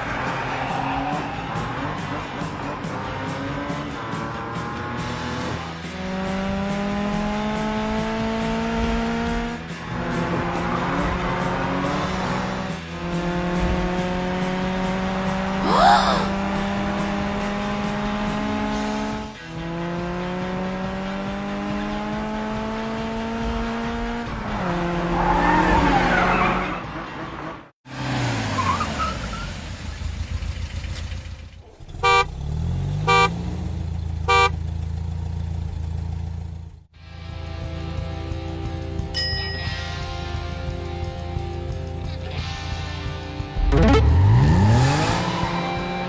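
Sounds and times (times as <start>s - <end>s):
short horn honks: 31.9s - 32.4s, 33.0s - 33.4s, 34.3s - 34.6s
cartoon engine drone: 43.6s - 45.2s.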